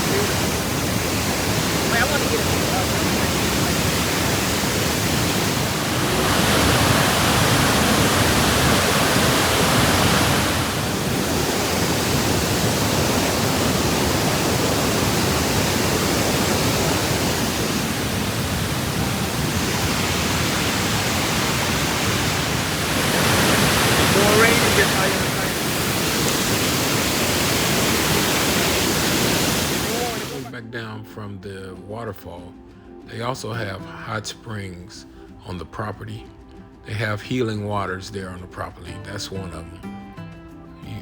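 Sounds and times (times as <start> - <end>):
waterfall rushing water: 0.0 - 30.5.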